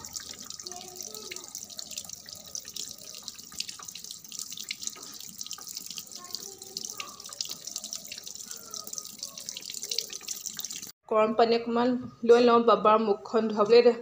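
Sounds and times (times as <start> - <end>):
water filling washing machine tub: 0.0 - 11.0.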